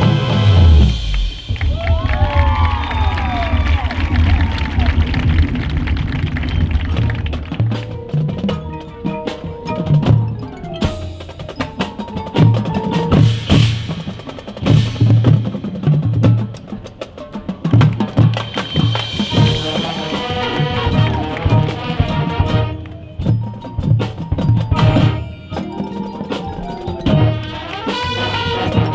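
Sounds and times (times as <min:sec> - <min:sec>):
cymbals crashing: 0:00.0 - 0:06.0, 0:06.6 - 0:28.9
snare and bass drums: 0:00.0 - 0:28.9
mallet keyboard notes: 0:06.6 - 0:28.9.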